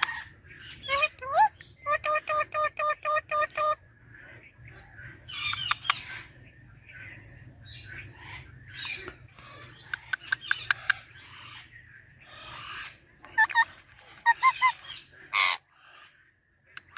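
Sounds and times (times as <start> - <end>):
parrot squawk: 12.5 - 16.0.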